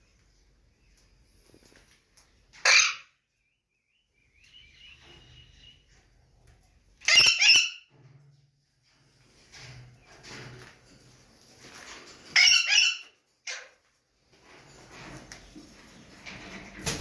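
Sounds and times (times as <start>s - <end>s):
parakeets screeching: 2.6s - 3.1s, 7.0s - 7.8s, 12.3s - 13.7s.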